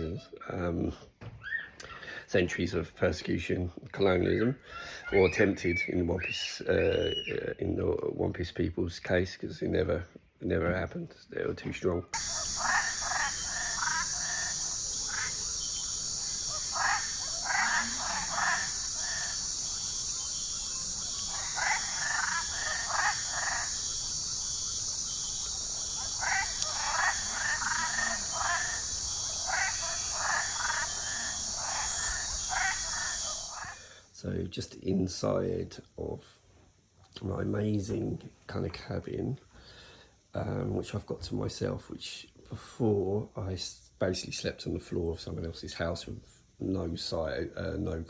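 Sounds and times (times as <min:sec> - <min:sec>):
high-pitched insect drone: 0:12.2 - 0:34.0
frogs calling: 0:12.2 - 0:34.1.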